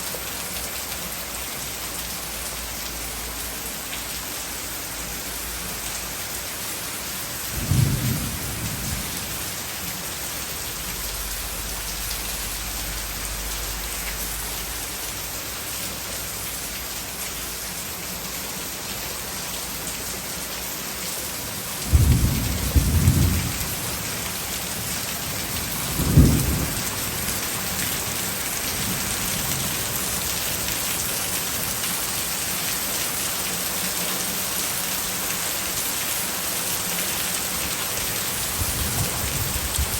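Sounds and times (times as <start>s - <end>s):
heavy rain: 0.0s - 39.9s
low thunder rumbles: 7.6s - 9.6s, 21.8s - 24.1s, 25.3s - 27.4s.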